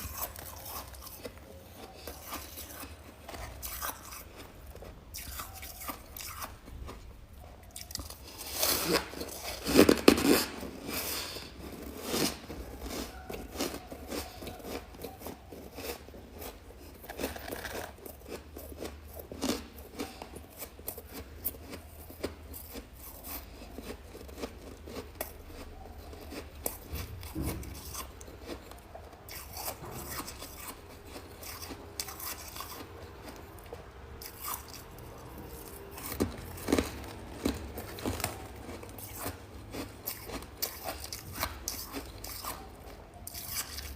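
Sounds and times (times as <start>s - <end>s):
freezer frost scraped and crunched: 8.0s - 33.4s, 35.5s - 43.9s.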